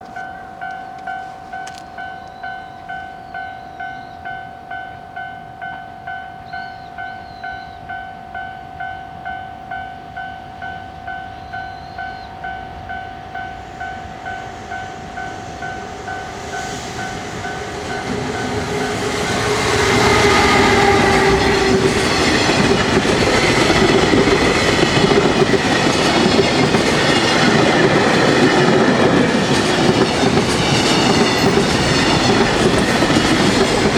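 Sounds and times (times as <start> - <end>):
freight train passing: 0.0 - 33.9
level-crossing warning bell: 0.0 - 33.9
wheels clattering over rail joints: 17.1 - 33.9.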